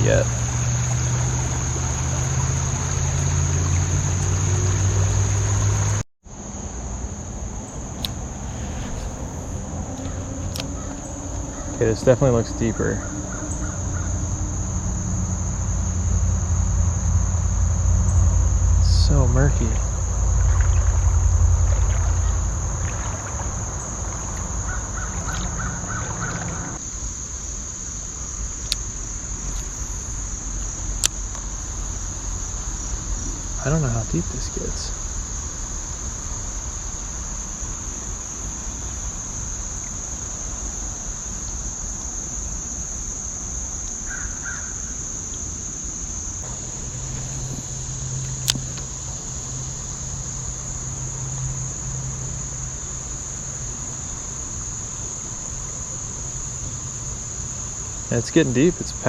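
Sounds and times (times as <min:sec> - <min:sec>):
high-pitched insect chorus: 0:00.0 - 0:59.0
quiet outdoor background: 0:00.0 - 0:59.0
low rumble: 0:06.7 - 0:26.8, 0:46.3 - 0:51.6.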